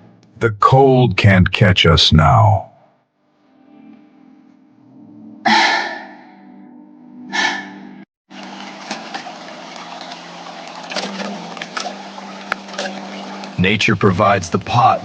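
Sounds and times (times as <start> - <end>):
breathy exhale: 5.5 - 6.3, 7.3 - 8.0.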